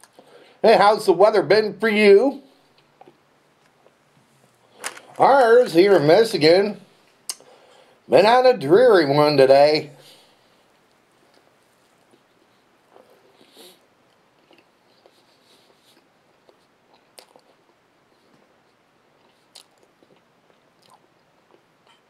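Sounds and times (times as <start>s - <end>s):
person chewing softly: 0.0s - 0.6s, 2.5s - 5.2s, 10.0s - 22.0s.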